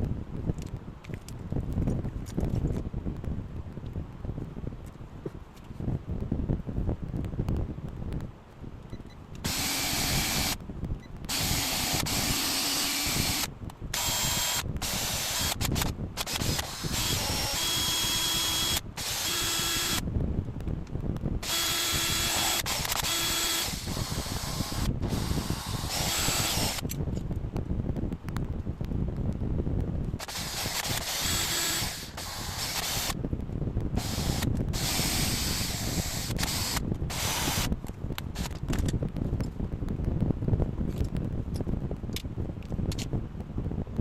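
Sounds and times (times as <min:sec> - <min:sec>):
electric drill whining: 0:09.4 - 0:10.6, 0:11.3 - 0:20.0, 0:21.4 - 0:27.0, 0:30.2 - 0:33.2, 0:34.0 - 0:37.7.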